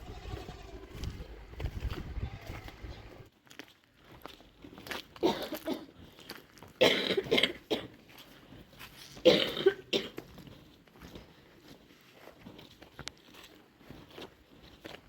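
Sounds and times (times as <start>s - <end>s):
person coughing: 5.2s - 5.9s, 6.8s - 7.9s, 9.2s - 10.2s.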